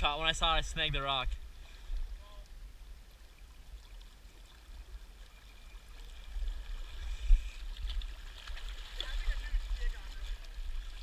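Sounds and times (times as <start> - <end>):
rushing river current: 0.0 - 11.0
wind rumbling on microphone: 5.6 - 11.0.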